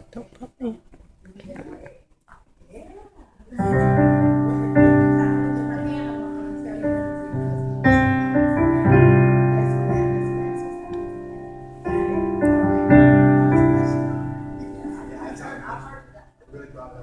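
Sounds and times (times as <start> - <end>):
piano chords ringing: 3.6 - 17.0.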